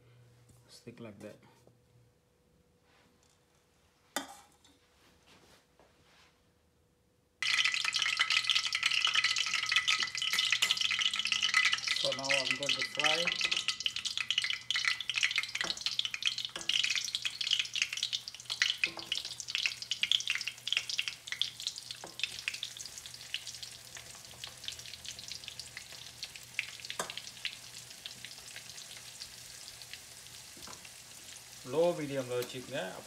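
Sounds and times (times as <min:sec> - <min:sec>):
food sizzling in hot oil: 0:07.4 - 0:33.0.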